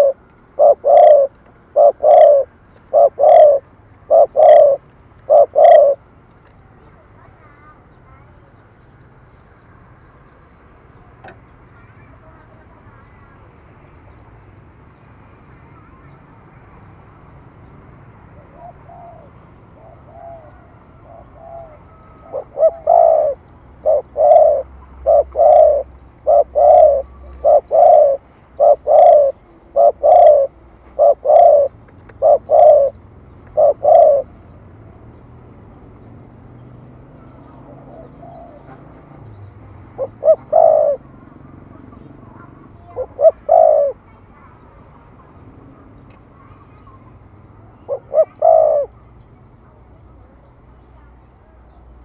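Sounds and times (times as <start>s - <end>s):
dove cooing: 0.0s - 6.1s, 18.3s - 34.7s, 36.5s - 44.6s, 46.4s - 49.2s.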